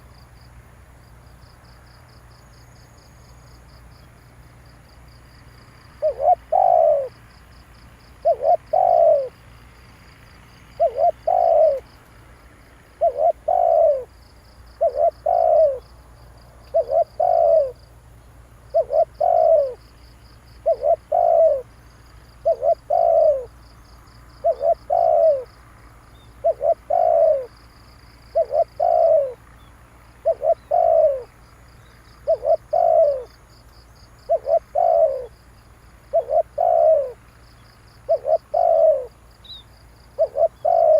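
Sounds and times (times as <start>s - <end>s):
dove cooing: 6.0s - 7.2s, 8.2s - 9.4s, 10.7s - 12.0s, 12.9s - 15.9s, 16.7s - 17.9s, 18.7s - 19.9s, 20.6s - 23.7s, 24.3s - 25.6s, 26.2s - 27.6s, 28.3s - 31.4s, 32.2s - 33.4s, 34.2s - 35.4s, 36.1s - 37.3s, 38.0s - 40.9s.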